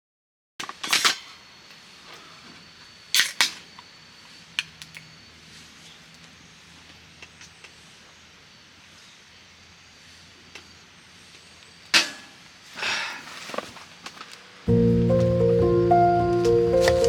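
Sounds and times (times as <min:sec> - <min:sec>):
steady background hiss: 0:00.6 - 0:17.0.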